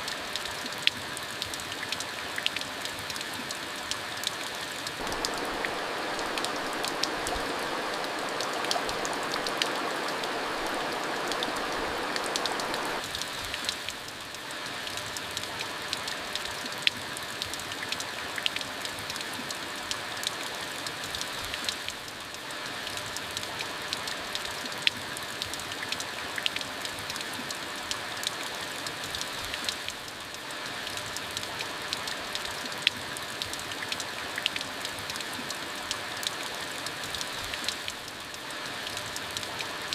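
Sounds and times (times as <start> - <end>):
raindrops ticking on a surface: 0.0 - 39.9
steady rain: 0.0 - 39.9.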